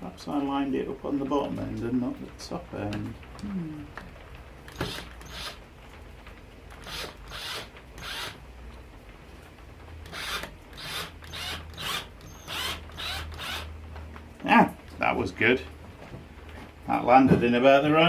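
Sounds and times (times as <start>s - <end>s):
cordless drill driving screw: 4.7s - 5.6s, 6.7s - 8.4s, 10.0s - 13.7s.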